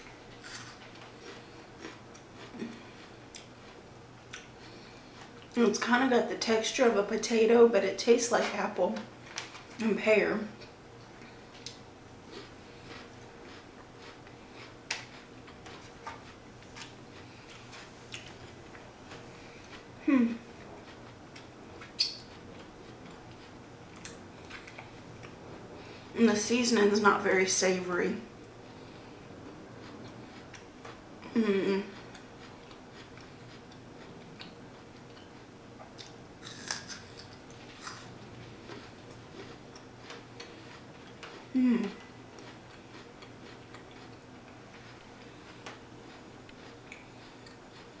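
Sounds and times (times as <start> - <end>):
crunchy chewing: 0.2 - 5.6, 10.6 - 26.1, 31.8 - 48.0
crunchy bite: 36.0 - 38.1.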